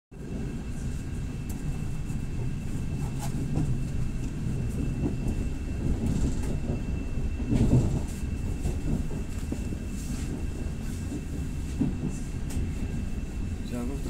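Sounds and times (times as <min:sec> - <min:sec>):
train carriage rumble: 0:00.1 - 0:14.0.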